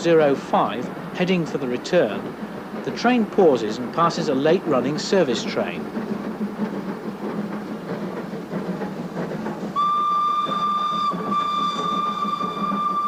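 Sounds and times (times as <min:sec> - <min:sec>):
steam train running: 0:00.0 - 0:13.0
steam locomotive whistle: 0:09.8 - 0:13.0.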